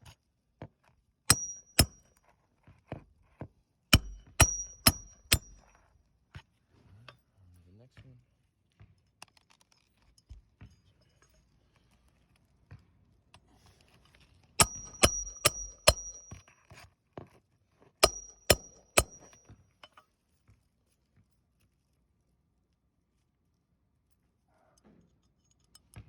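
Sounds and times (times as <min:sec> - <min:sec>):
hammer striking metal tool: 0:01.3 - 0:02.1, 0:03.9 - 0:05.7, 0:14.6 - 0:16.4, 0:18.0 - 0:20.0.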